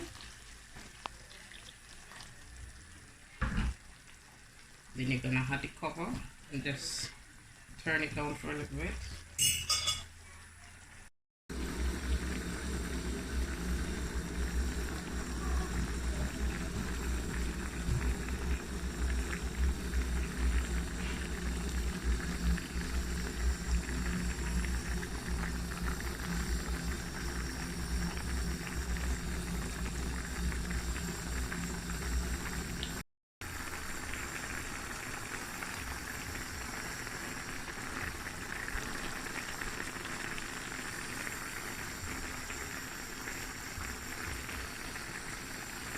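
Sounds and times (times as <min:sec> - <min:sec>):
stew bubbling in a pot: 0:00.0 - 0:09.5, 0:10.2 - 0:45.9
low hum: 0:11.5 - 0:33.0.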